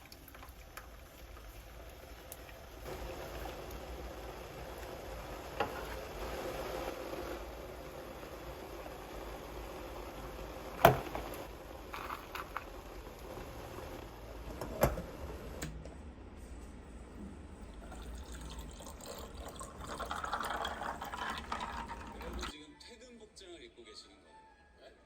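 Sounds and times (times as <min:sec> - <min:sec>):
liquid pouring: 0:00.0 - 0:14.0, 0:17.6 - 0:22.5.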